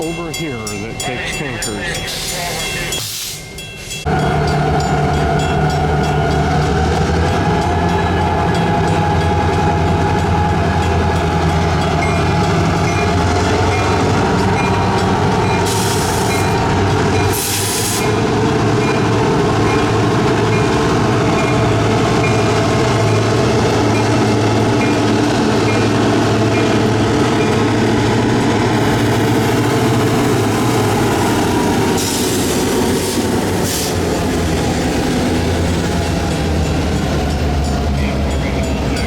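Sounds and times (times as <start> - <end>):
locomotive engine drone: 0.0 - 39.0.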